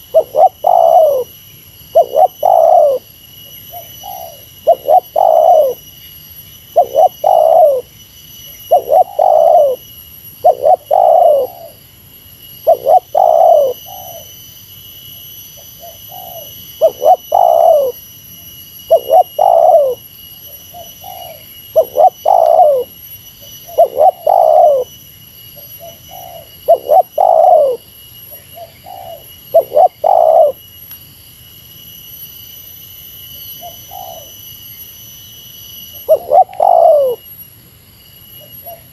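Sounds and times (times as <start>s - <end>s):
dove cooing: 0.0s - 3.1s, 3.7s - 5.8s, 6.8s - 7.9s, 8.7s - 9.8s, 10.4s - 11.8s, 12.6s - 14.3s, 15.8s - 18.0s, 18.9s - 20.0s, 20.7s - 22.9s, 23.6s - 24.9s, 25.6s - 30.6s, 33.6s - 34.3s, 36.0s - 37.2s, 38.6s - 38.9s.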